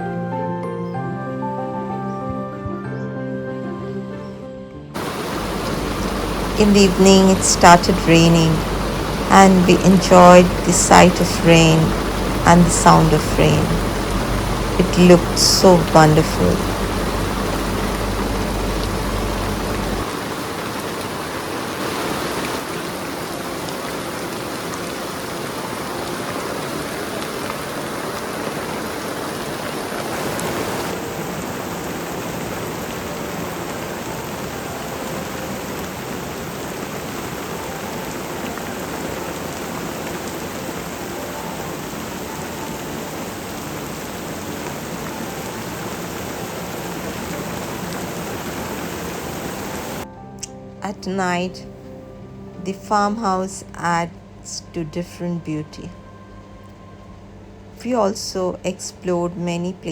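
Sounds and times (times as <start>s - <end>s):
steady rain falling: 5.0s - 50.4s.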